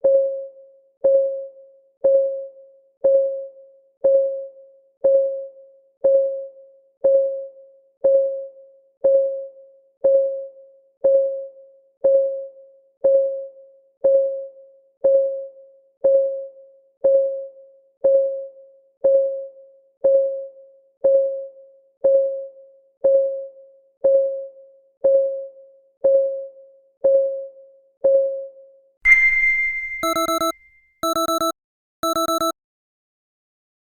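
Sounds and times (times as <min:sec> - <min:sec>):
clock ticking: 0:30.0 - 0:32.5.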